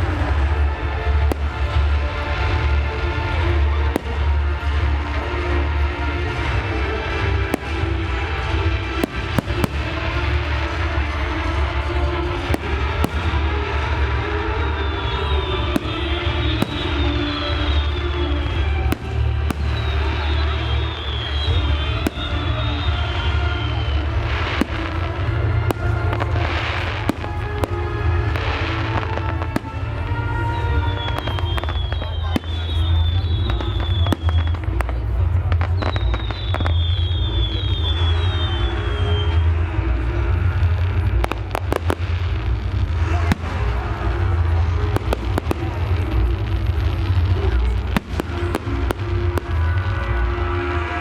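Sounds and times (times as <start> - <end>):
continuous low rumble: 0.0 - 51.0
fireworks bangs: 0.0 - 51.0
fireworks crackling: 0.0 - 51.0.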